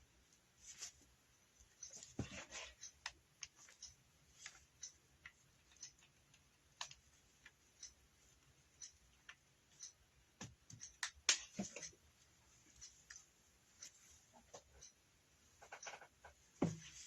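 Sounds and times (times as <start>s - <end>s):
hands clicking and tapping craft materials: 10.3s - 12.0s.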